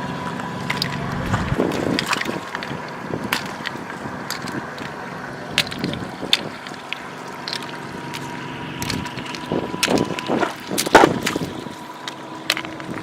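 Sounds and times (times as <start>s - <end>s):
floodwater running and sloshing: 0.0s - 13.0s.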